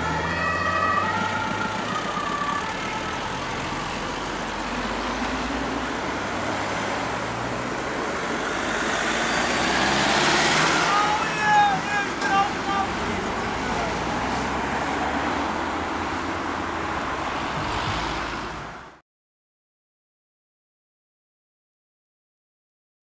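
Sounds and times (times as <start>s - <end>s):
two-tone emergency siren: 0.0s - 5.2s
road traffic noise: 0.0s - 19.0s.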